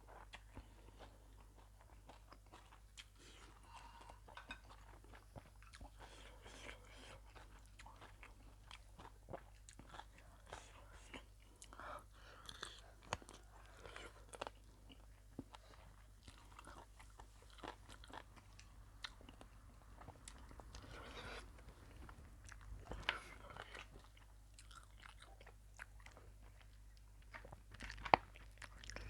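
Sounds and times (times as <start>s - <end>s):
person chewing and crunching: 0.0s - 29.0s.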